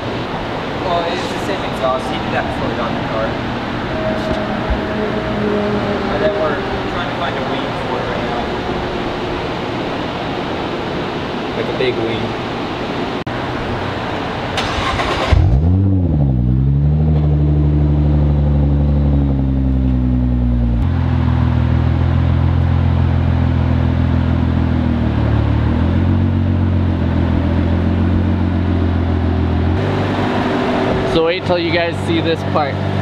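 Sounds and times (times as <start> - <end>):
car engine starting and idling: 13.3 - 33.0.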